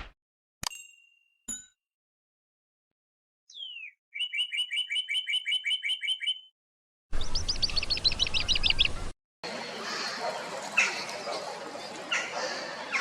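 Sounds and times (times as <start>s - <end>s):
bird trill: 3.5s - 6.5s, 7.2s - 9.1s
falling bird whistle: 3.5s - 6.5s.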